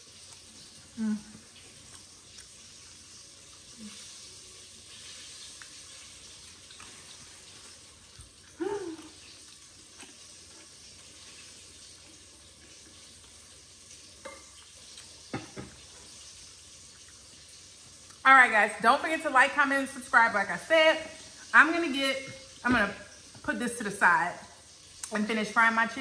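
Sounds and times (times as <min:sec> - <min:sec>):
chicken frying in hot oil: 0:00.0 - 0:26.0
person humming: 0:01.0 - 0:01.4, 0:08.6 - 0:09.1.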